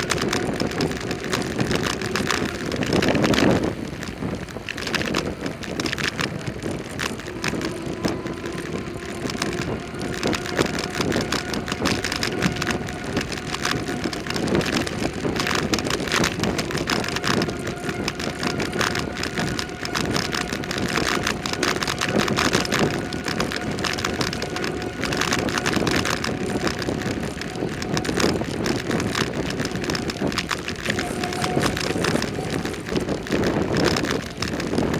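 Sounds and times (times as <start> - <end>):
bicycle tyres on road: 0.0 - 34.9
fine rattling: 0.0 - 34.9
wind on microphone: 0.0 - 34.9.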